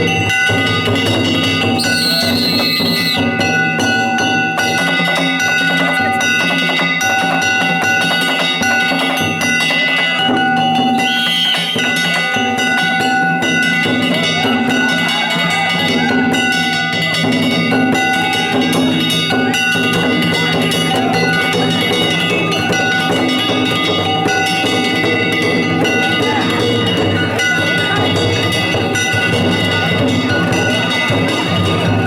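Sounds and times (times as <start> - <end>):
drum beats: 0.0 - 32.0
hand gongs clanging: 0.0 - 32.0.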